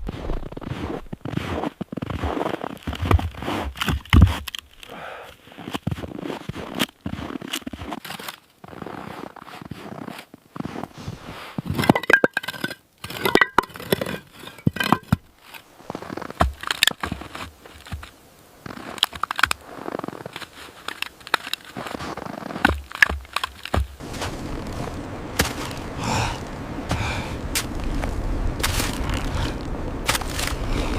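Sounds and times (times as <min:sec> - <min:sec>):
objects being handled: 0:10.0 - 0:24.0.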